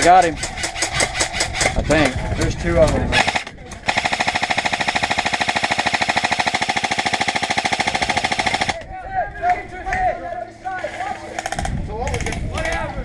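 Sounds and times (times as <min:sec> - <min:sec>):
airsoft gun full-auto burst: 0:03.1 - 0:08.8.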